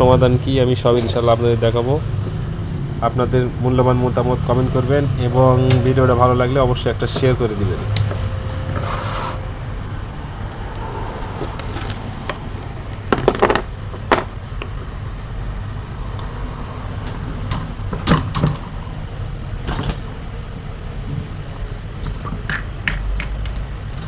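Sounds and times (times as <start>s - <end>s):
steady low hum: 0.0s - 24.0s
sharp clicks and knocks: 22.0s - 24.0s.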